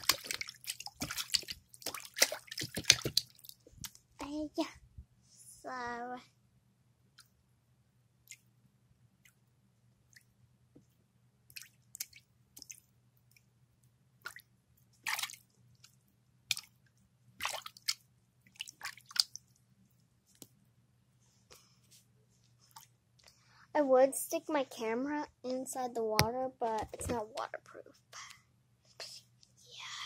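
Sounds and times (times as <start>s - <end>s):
fingers squishing water: 0.0s - 4.0s, 8.2s - 8.5s, 11.5s - 13.5s, 14.2s - 19.6s
water dripping: 0.0s - 4.0s, 11.5s - 13.5s, 17.4s - 19.6s.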